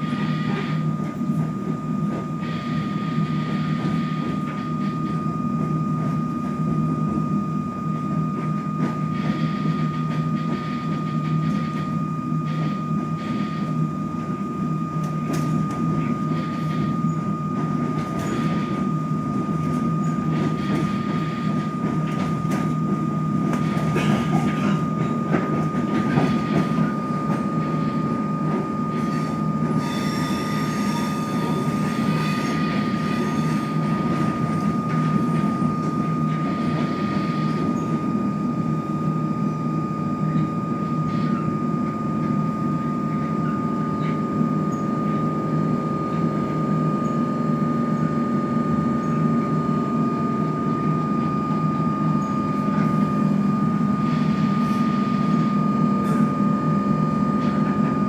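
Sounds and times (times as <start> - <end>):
train rumble inside carriage: 0.0 - 58.0
thin wheel squeal: 29.0 - 33.8.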